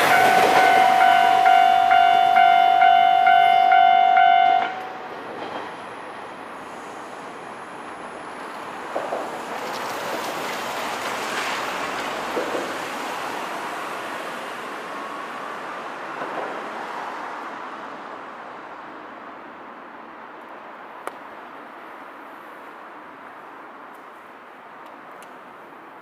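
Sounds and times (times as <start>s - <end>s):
railcar wheels rumbling on rail: 0.0s - 17.3s.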